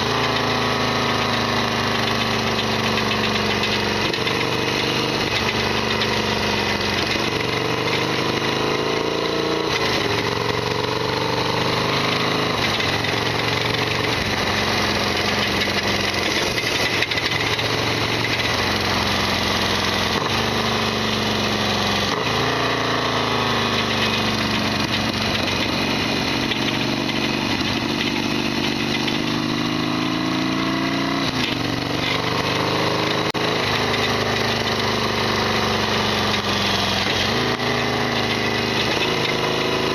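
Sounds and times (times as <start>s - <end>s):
motorcycle engine revving: 0.0s - 39.9s
heavy mechanical rattle: 12.5s - 18.8s.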